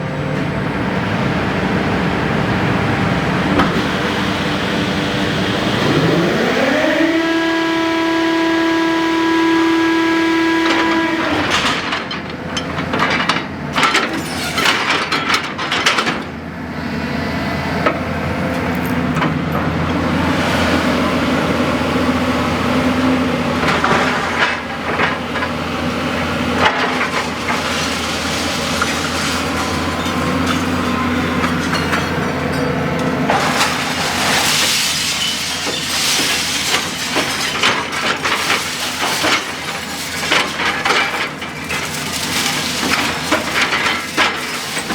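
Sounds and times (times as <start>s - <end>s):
hydraulic whine: 2.5s - 12.2s
metallic clanks and cracks: 10.7s - 16.3s, 26.6s - 44.9s.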